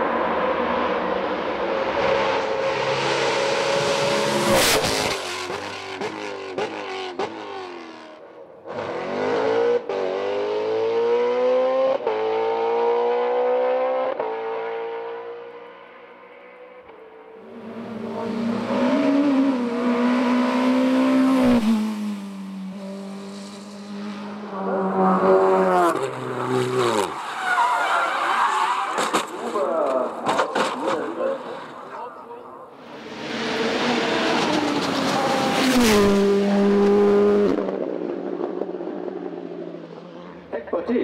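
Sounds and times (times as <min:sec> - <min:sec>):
race car engine accelerating: 0:17.5 - 0:27.1, 0:33.0 - 0:39.4.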